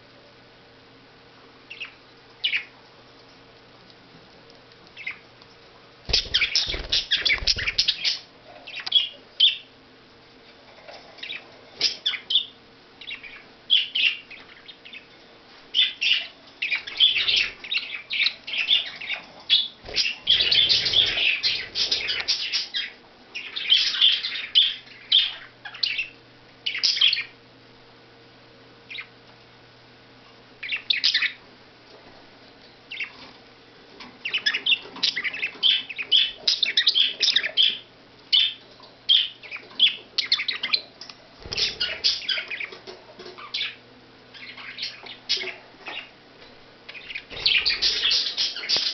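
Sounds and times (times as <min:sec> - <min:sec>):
budgies chirping: 0:01.7 - 0:02.8, 0:05.0 - 0:05.3, 0:06.1 - 0:09.7, 0:11.0 - 0:27.4, 0:28.9 - 0:29.1, 0:30.6 - 0:31.4, 0:32.9 - 0:33.4, 0:34.0 - 0:46.2, 0:46.9 - 0:48.9.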